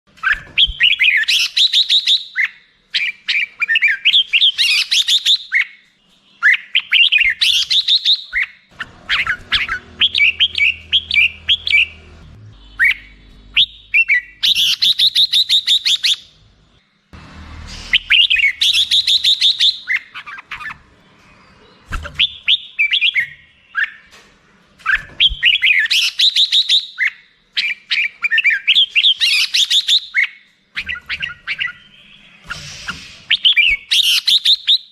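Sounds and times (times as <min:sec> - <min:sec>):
bulbul chattering song: 0:06.3 - 0:16.4, 0:17.6 - 0:24.0.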